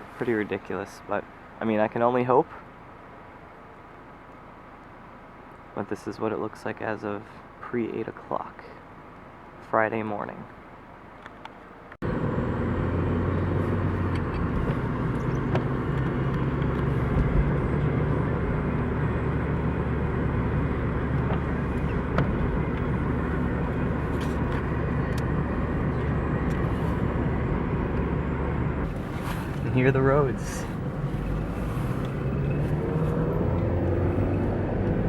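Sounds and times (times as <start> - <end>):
road noise: 0.0 - 35.0
car engine hum: 10.4 - 35.0.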